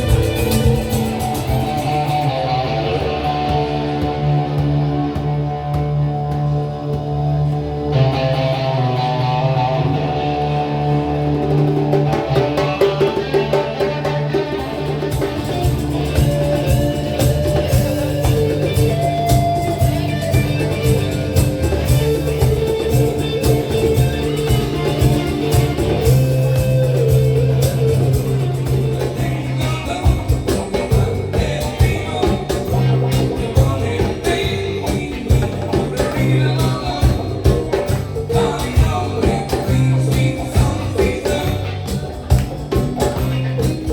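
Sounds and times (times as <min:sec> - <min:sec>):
sharp percussive hits: 0:00.0 - 0:02.4
live rock band playing: 0:00.0 - 0:43.9.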